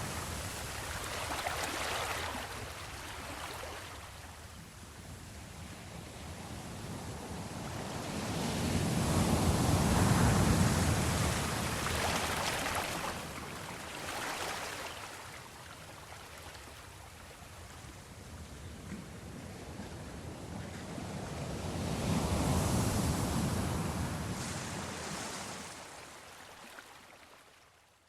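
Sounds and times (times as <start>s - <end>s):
sea waves washing: 7.2s - 15.6s.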